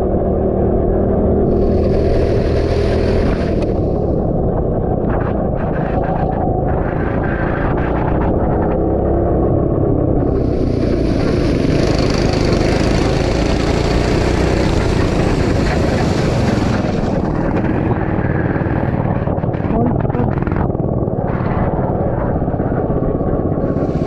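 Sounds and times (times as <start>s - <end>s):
go-kart engine running: 0.0s - 24.0s.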